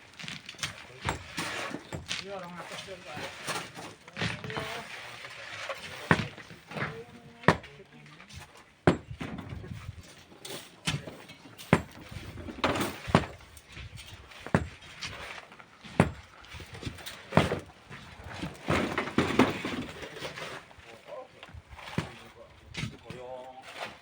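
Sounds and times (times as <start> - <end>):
hand tools striking stone: 0.5 - 5.1, 5.8 - 7.7, 8.4 - 9.5, 10.4 - 13.4, 14.4 - 17.7.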